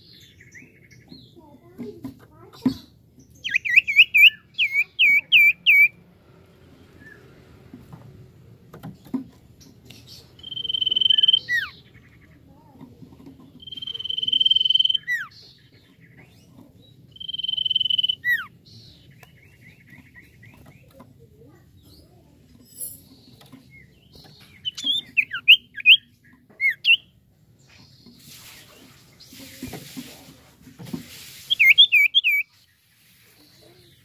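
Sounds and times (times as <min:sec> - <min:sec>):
bird chirps: 0:02.8 - 0:06.0, 0:09.6 - 0:12.4, 0:13.5 - 0:29.6, 0:31.4 - 0:34.0
long bird whistles: 0:10.4 - 0:11.7, 0:13.6 - 0:15.3, 0:17.2 - 0:18.5.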